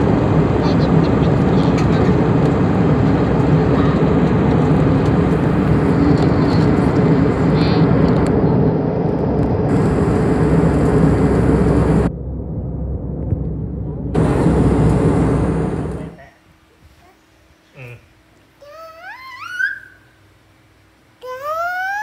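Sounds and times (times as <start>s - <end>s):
airliner cabin drone: 0.0s - 16.3s.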